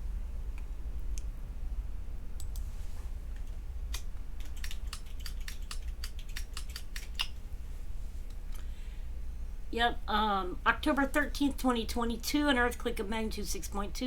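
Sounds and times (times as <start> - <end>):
steady low hum: 0.0 - 14.0
typing on computer keyboard: 3.9 - 7.2.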